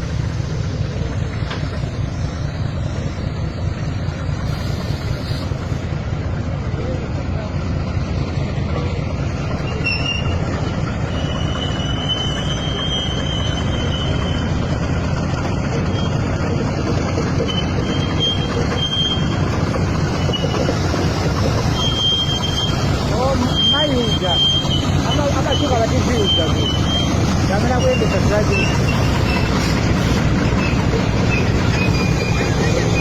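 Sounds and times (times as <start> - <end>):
freight train rumbling: 0.0 - 33.0
high wheel squeal: 9.5 - 33.0.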